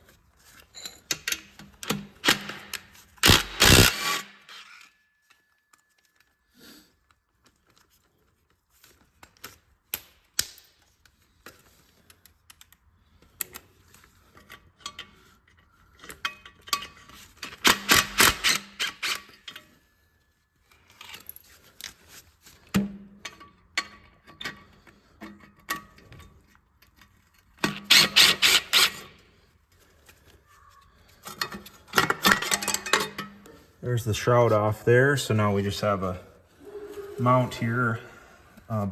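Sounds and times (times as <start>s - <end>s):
metal tools clinking: 0.4s - 2.9s, 31.2s - 33.7s
ratchet wrench clicking: 2.2s - 4.7s.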